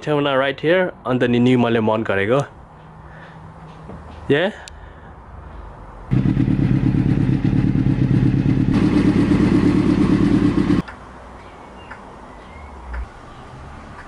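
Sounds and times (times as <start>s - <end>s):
motorcycle engine running: 6.1s - 10.8s.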